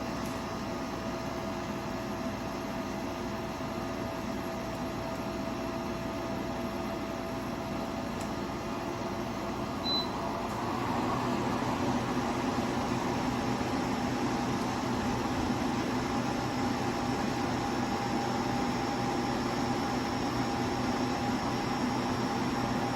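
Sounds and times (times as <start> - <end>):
air conditioner humming: 0.0 - 22.9
short high beep: 9.8 - 10.2.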